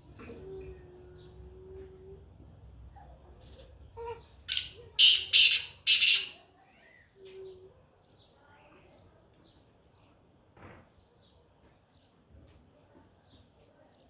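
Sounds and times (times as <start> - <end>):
faint bird calls: 0.0 - 8.9
francolin harsh call: 4.5 - 6.4.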